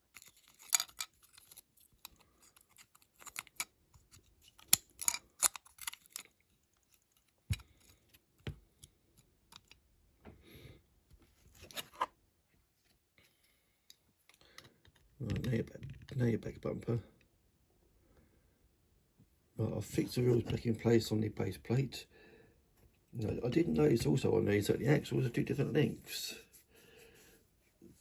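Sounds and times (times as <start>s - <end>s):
model parts clicking: 0.1s - 8.2s.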